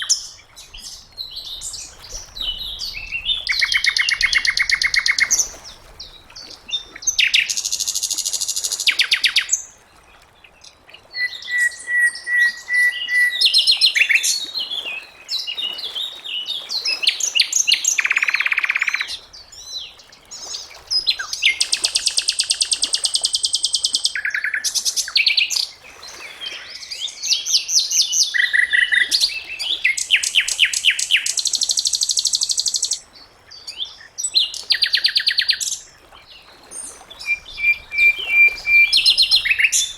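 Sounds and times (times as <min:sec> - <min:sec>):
bird singing high trills: 0:37.2 - 0:39.9.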